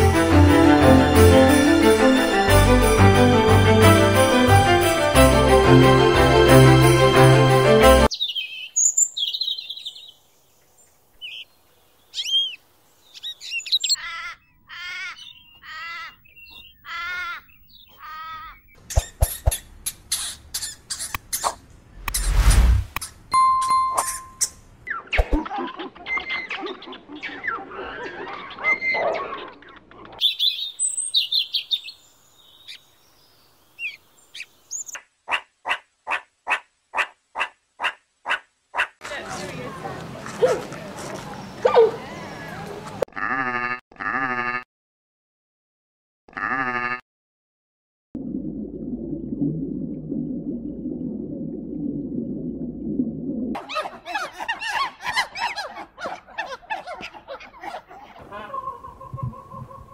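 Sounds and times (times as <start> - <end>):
sparrow chirping: 12.1 - 14.6, 15.2 - 21.6
harsh wavering bird calls: 12.1 - 21.6
gull cries: 16.8 - 18.6.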